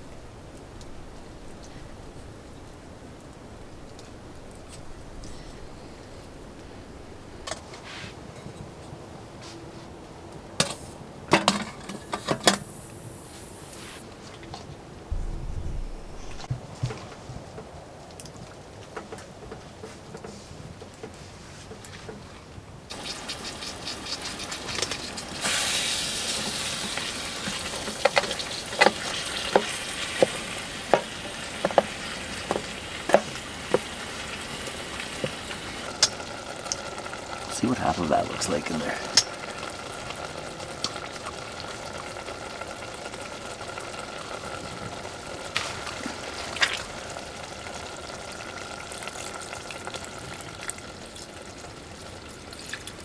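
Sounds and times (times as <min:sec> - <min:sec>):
food sizzling in a hot pan: 0:12.5 - 0:14.0, 0:22.9 - 0:37.5
short hiss: 0:12.5 - 0:14.0
sharp knock: 0:15.1 - 0:16.5
sharp pops and spits: 0:22.9 - 0:26.0.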